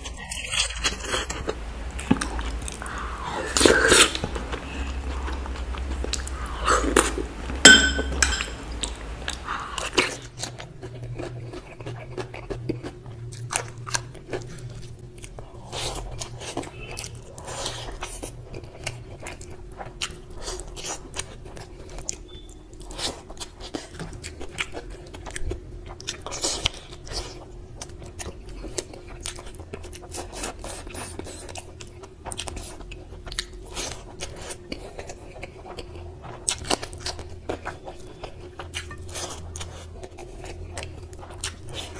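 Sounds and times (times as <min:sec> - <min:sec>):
low steady hum: 0:00.0 - 0:41.9
wet chewing and mouth smacks: 0:08.3 - 0:41.9.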